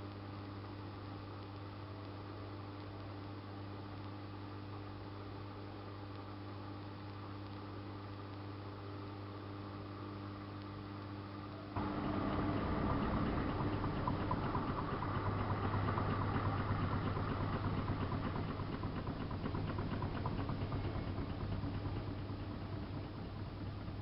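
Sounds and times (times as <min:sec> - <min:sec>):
washing machine hum: 0:11.5 - 0:24.0
water gurgling: 0:11.8 - 0:20.9
fast even ticking: 0:11.8 - 0:22.1.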